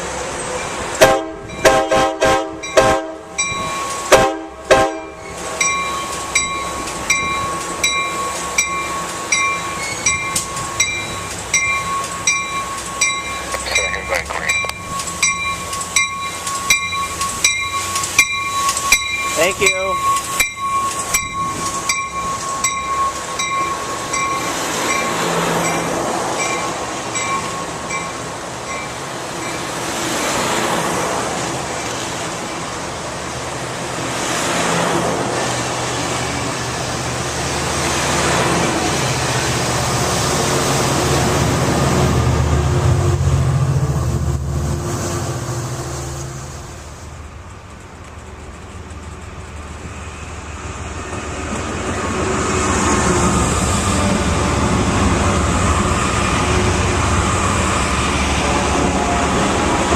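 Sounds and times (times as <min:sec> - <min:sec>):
train wheels on rails: 0:00.0 - 0:59.9
low engine drone: 0:13.5 - 0:14.9.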